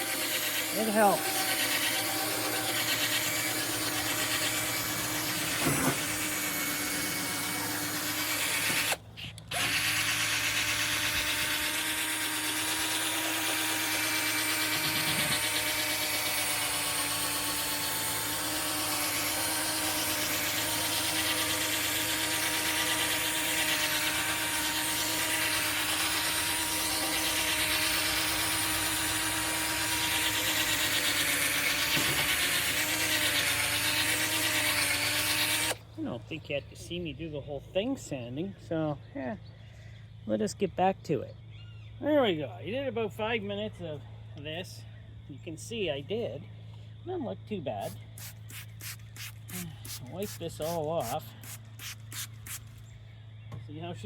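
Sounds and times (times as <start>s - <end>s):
sanding disc hissing on plastic: 0.0s - 9.0s, 9.6s - 35.8s, 47.8s - 52.8s
power drill motor running: 0.0s - 35.9s, 47.9s - 52.8s.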